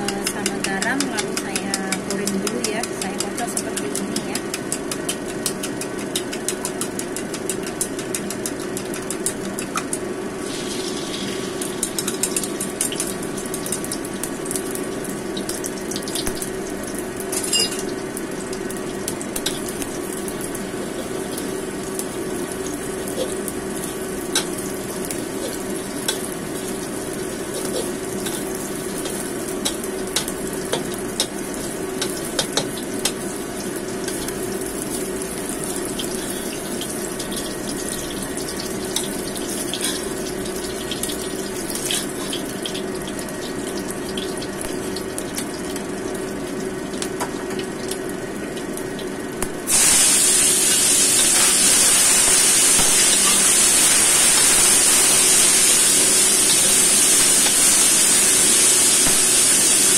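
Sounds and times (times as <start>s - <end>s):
food frying in oil: 0.0s - 59.9s.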